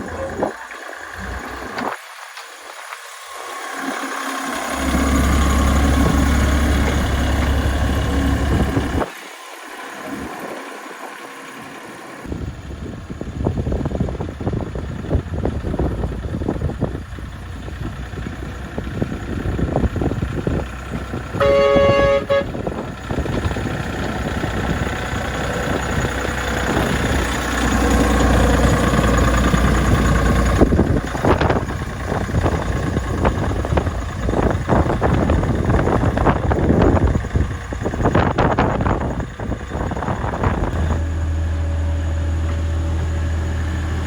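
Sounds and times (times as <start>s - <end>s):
miniature train rumbling and clattering: 3.4s - 11.2s, 11.9s - 44.0s
train horn: 21.4s - 22.8s.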